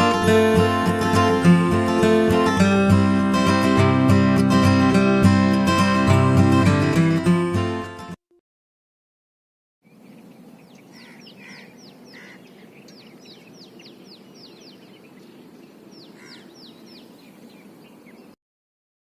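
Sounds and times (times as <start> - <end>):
birds whistling downward: 9.9 - 18.4.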